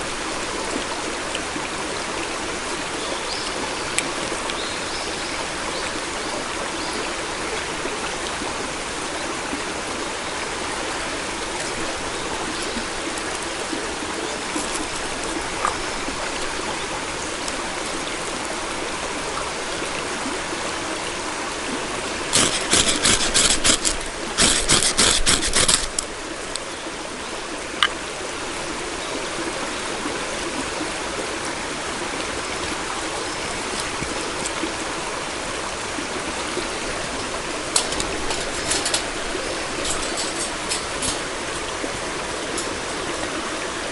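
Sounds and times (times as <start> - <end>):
stream water rushing: 0.0 - 43.9
rapid crackly clicking: 22.3 - 26.1, 37.6 - 39.2, 39.8 - 41.3.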